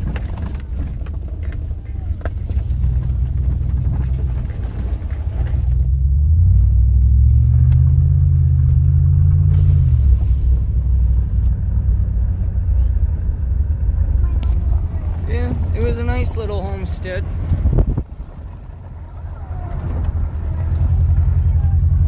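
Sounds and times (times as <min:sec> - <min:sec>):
tyre rumble on dirt road: 0:00.0 - 0:22.0
vehicle engine: 0:00.0 - 0:22.0.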